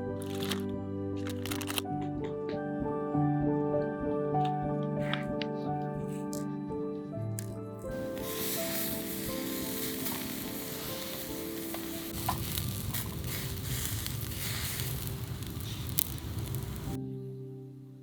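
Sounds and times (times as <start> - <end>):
soft background music: 0.0 - 18.0
food sizzling with pops: 0.2 - 0.6, 7.4 - 17.0.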